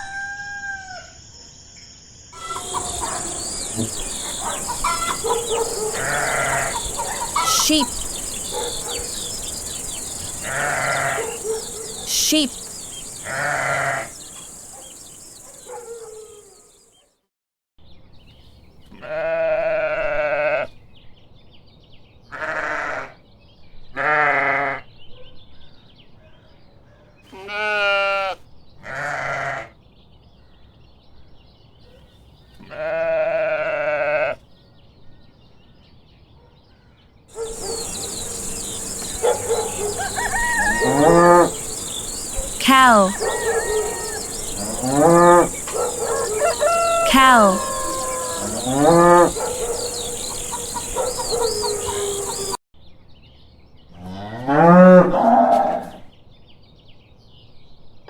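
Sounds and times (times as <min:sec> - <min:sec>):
sheep bleating: 0:04.6 - 0:08.1, 0:10.4 - 0:11.4, 0:13.2 - 0:14.2, 0:24.0 - 0:24.8, 0:27.3 - 0:29.7, 0:37.5 - 0:42.0, 0:42.6 - 0:45.7, 0:46.4 - 0:49.4.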